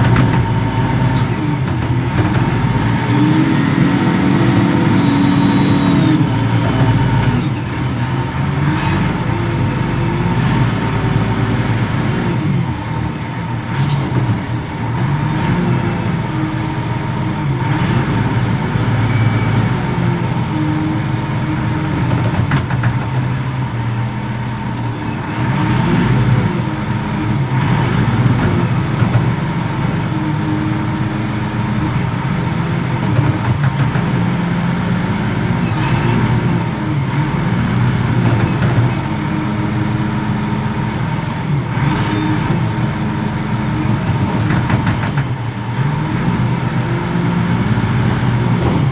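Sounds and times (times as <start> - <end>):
heavy diesel engine revving: 0.0 - 48.9.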